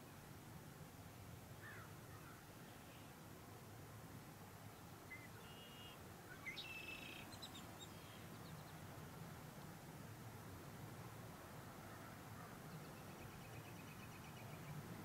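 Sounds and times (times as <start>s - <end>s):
faint songbird calls: 1.6s - 3.2s, 4.8s - 8.8s, 11.9s - 14.8s.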